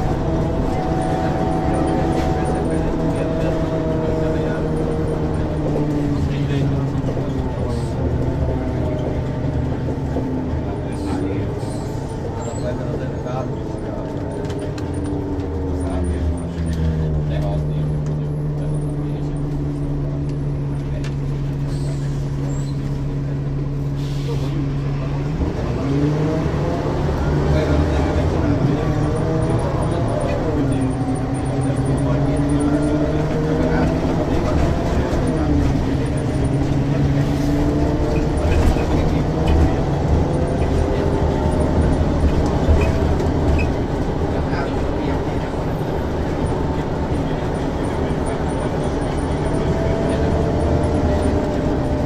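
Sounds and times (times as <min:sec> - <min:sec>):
bus diesel engine droning: 0:00.0 - 0:52.0.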